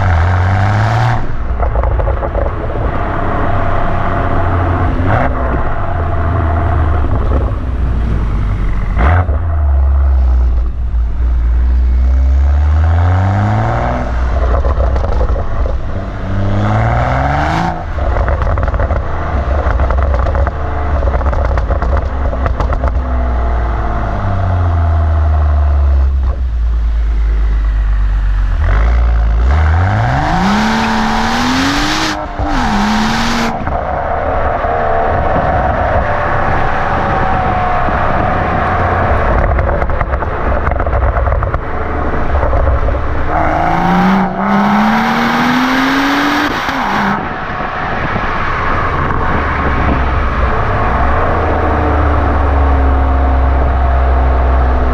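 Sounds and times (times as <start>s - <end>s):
exhaust cracks: 0.0s - 12.2s, 13.8s - 44.7s
car engine revving: 0.0s - 54.9s.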